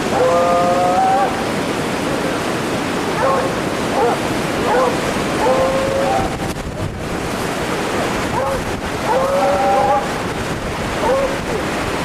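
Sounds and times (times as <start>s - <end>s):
steady rushing noise: 0.0s - 12.0s
dogs barking: 3.1s - 6.3s, 8.3s - 10.1s, 11.0s - 11.4s.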